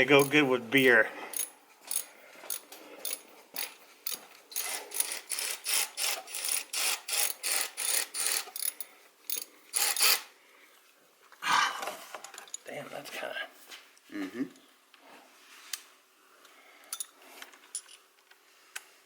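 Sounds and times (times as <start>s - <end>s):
ratchet wrench clicking: 1.3s - 10.3s.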